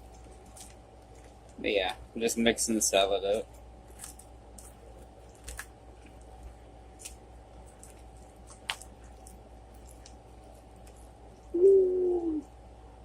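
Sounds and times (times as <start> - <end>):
salad tossed in a bowl: 6.9 - 11.0
short pitched hum or coo: 11.5 - 12.5.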